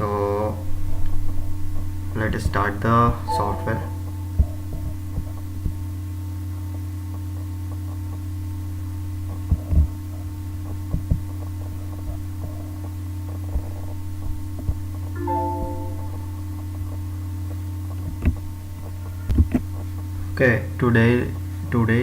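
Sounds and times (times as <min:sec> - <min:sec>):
short multi-pitched tone: 0:03.3 - 0:04.5, 0:15.2 - 0:16.6.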